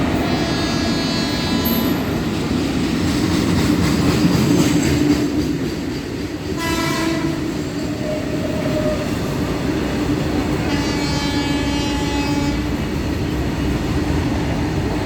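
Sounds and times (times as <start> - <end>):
freight train rumbling past: 0.0 - 15.0
train horn blast: 0.2 - 2.0, 6.6 - 7.6, 10.6 - 12.8.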